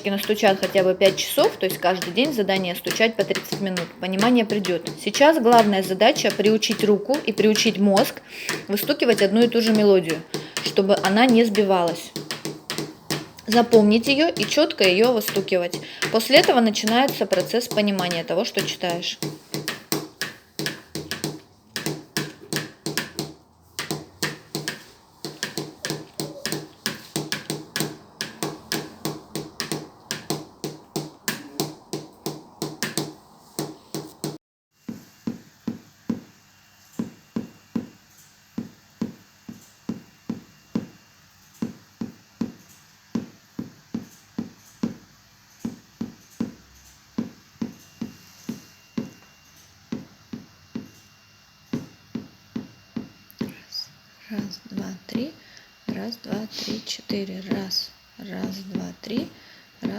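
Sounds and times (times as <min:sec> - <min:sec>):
hand tapping on tabletop: 0:00.0 - 0:34.4.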